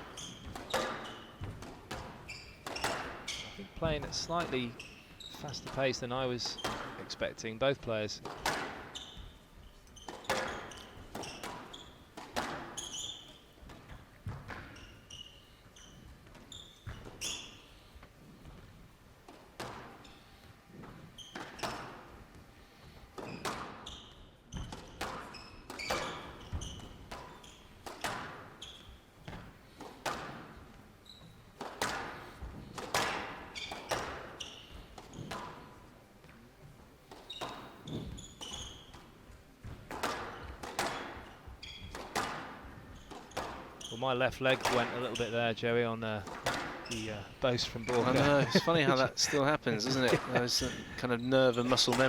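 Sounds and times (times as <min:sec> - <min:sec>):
squash ball hitting rackets and walls: 0:00.0 - 0:07.2, 0:07.9 - 0:48.4, 0:49.8 - 0:52.0
shoes squeaking on court floor: 0:00.0 - 0:52.0.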